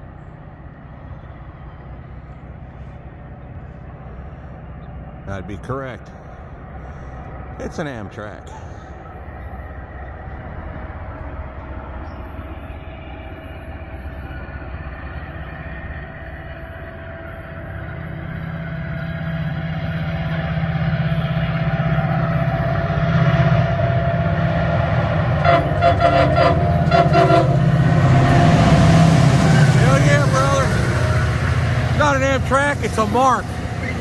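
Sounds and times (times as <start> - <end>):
train approaching rumble: 0.0 - 34.0
train horn: 20.8 - 31.8.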